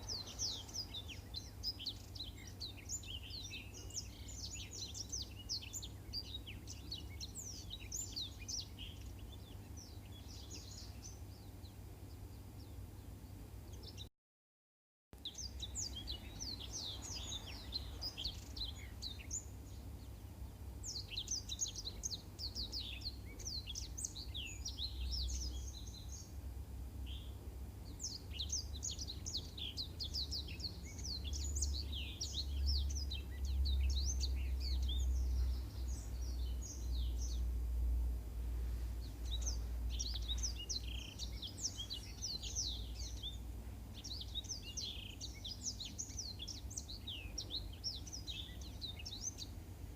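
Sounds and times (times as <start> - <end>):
canary singing twittering chirps: 0.0 - 12.7, 15.2 - 26.3, 27.0 - 37.8, 39.0 - 49.7
steady low rumble: 22.3 - 44.5.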